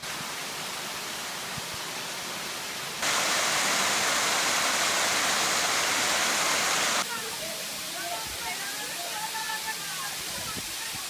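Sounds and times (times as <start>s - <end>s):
waterfall rushing: 3.0s - 7.0s.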